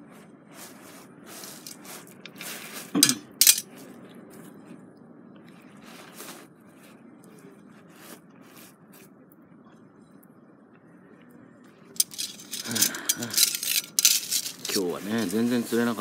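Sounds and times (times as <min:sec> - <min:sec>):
light rustling: 0:12.0 - 0:15.6.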